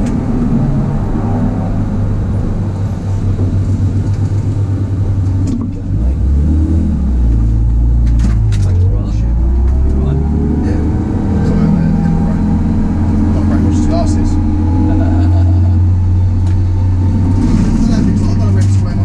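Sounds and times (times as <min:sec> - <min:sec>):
car engine at low revs: 0:00.0 - 0:19.0.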